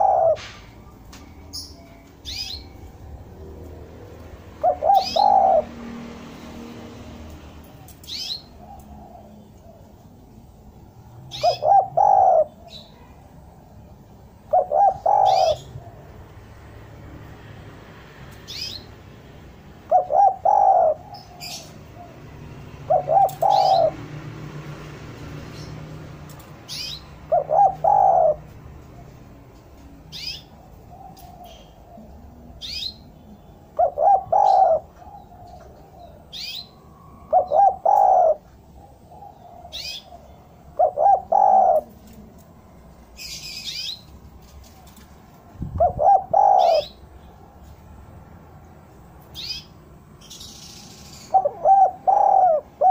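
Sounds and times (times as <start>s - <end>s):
dove cooing: 0.0s - 0.7s, 2.2s - 6.7s, 7.7s - 16.4s, 19.8s - 24.2s, 26.4s - 29.2s, 30.1s - 44.0s, 45.6s - 47.2s, 50.9s - 52.9s
small bird chirps: 0.9s - 2.9s, 49.3s - 52.5s.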